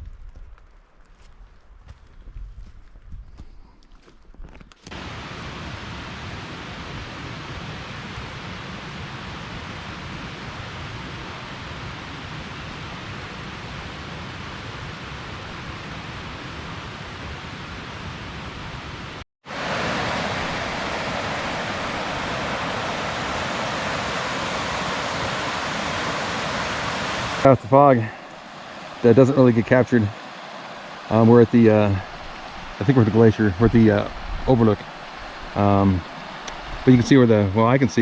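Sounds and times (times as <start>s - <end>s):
running water rushing: 19.5s - 38.0s.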